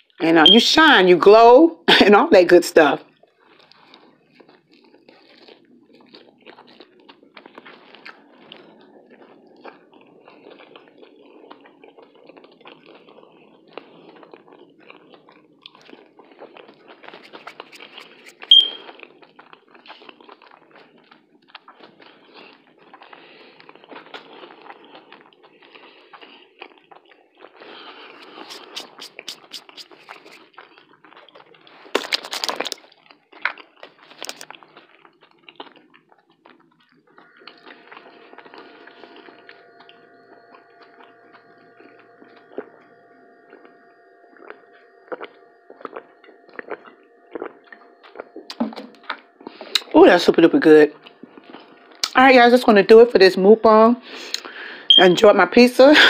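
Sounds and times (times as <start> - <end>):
chewing crunchy pizza: 3.0 - 54.7
sharp high-pitched blip: 18.3 - 18.8.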